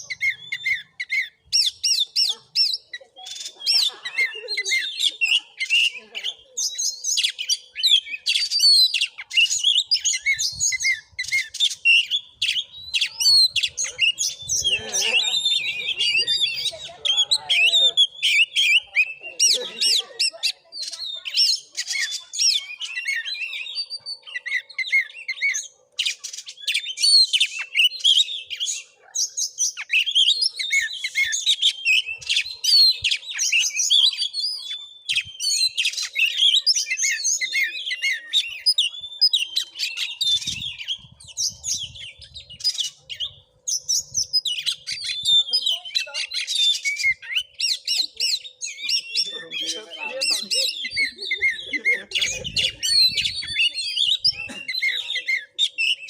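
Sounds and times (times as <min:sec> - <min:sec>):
bird singing varied whistles: 0:21.4 - 0:56.0.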